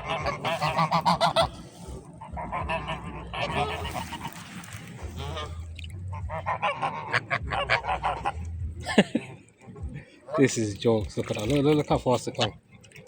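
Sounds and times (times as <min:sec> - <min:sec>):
geese honking: 0:00.0 - 0:08.7.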